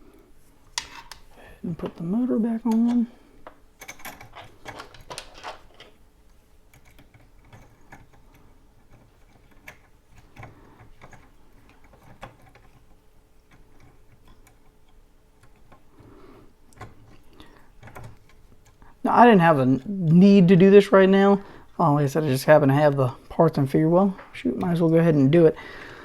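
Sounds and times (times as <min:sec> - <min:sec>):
metal parts clicking and knocking: 0:02.6 - 0:06.0, 0:06.7 - 0:15.9, 0:17.8 - 0:18.8.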